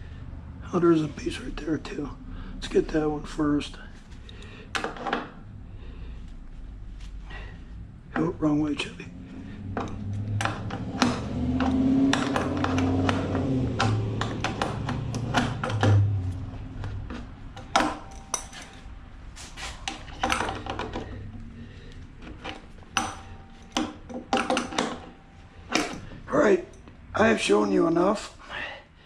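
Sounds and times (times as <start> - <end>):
metallic knocks and clinks: 9.6 - 28.2.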